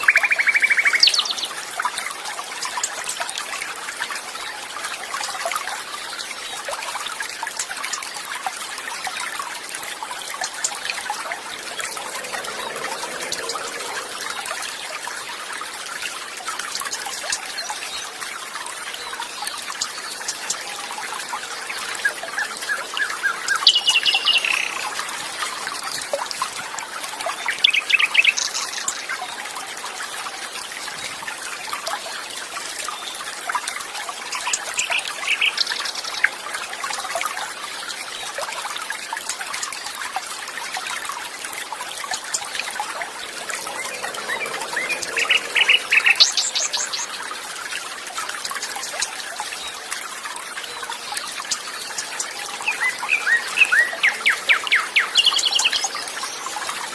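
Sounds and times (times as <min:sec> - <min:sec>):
birds chirping: 0:00.0 - 0:01.6, 0:10.0 - 0:15.4, 0:21.6 - 0:25.4, 0:42.2 - 0:47.4
stream water trickling: 0:00.0 - 0:56.9.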